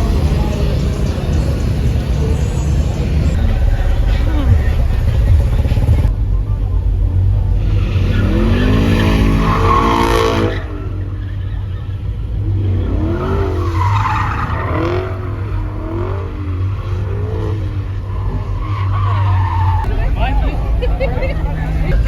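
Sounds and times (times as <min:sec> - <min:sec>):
low engine rumble: 0:00.0 - 0:22.0
car tires squealing: 0:07.4 - 0:22.0.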